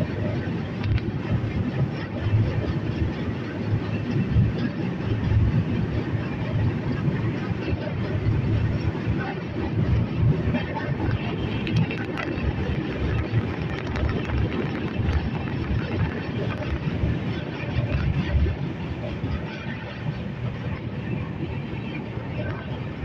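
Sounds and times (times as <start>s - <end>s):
train wheels rumbling on track: 0.0s - 23.0s
wind noise: 0.0s - 23.0s.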